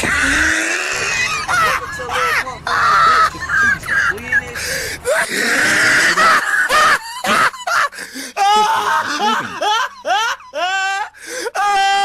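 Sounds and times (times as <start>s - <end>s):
people laughing: 1.1s - 4.4s, 6.0s - 11.0s.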